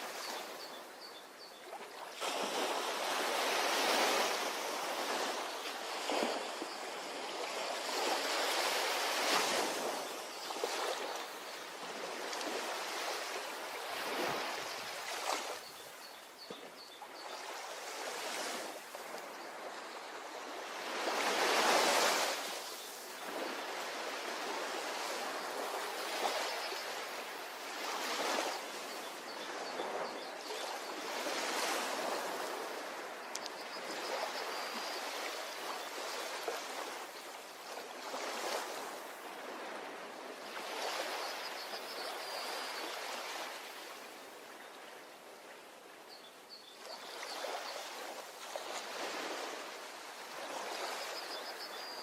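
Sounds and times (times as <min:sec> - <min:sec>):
ocean waves breaking on beach: 0:00.0 - 0:52.0.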